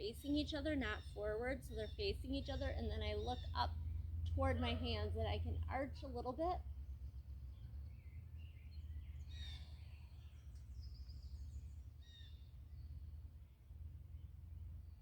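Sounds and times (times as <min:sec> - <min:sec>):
steady low rumble: 0:00.0 - 0:15.0
birds chirping and whistling: 0:07.5 - 0:12.9.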